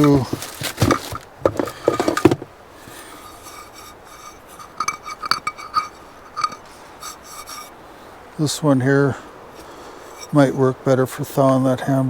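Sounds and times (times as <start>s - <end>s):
cookware clinking: 0.0s - 2.4s, 3.0s - 7.7s.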